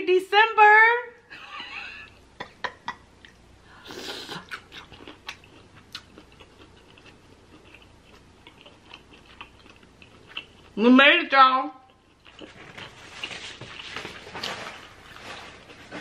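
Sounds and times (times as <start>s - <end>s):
wet chewing and smacking: 4.3s - 10.8s, 11.8s - 16.0s.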